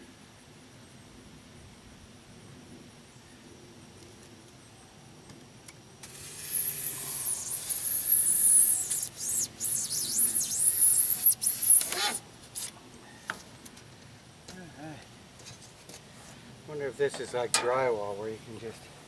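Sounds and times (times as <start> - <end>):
knife squeaking through foam board: 6.3 - 12.8.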